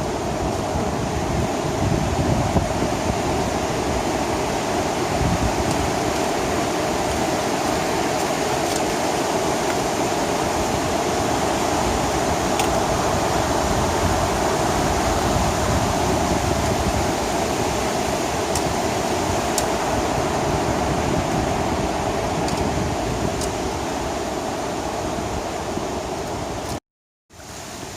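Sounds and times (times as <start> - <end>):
creek water rushing: 0.0 - 27.9.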